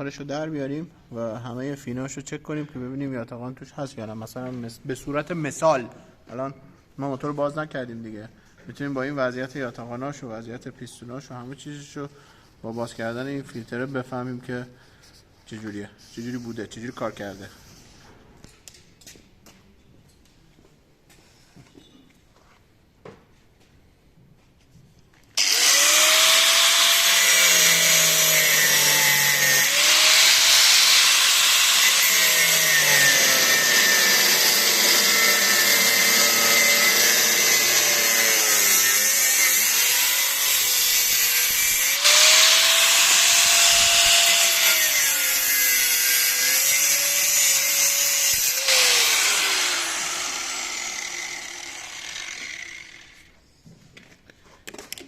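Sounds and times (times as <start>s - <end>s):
power tool cutting metal: 25.4s - 53.3s.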